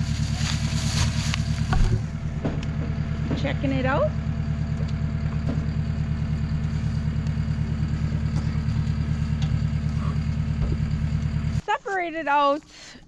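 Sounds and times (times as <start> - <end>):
vehicle engine idling: 0.0 - 11.6.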